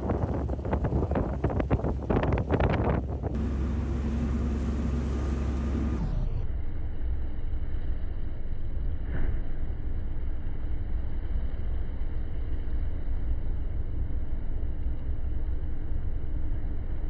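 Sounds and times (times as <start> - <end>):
wind buffeting microphone: 0.0 - 3.4
low engine rumble: 0.0 - 17.0.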